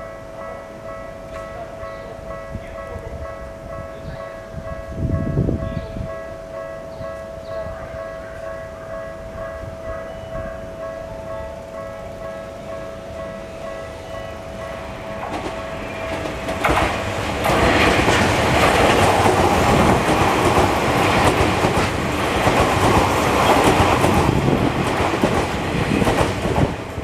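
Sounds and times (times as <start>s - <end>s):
level crossing bell: 0.0s - 16.2s
train wheels clattering over joints: 14.6s - 27.0s.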